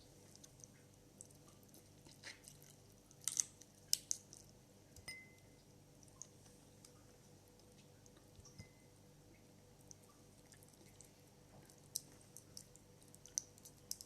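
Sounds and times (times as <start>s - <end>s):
chewing: 0.2s - 4.6s, 9.8s - 14.0s
crab shell crunching: 0.3s - 4.6s
ringing clink against dish: 5.1s - 5.4s.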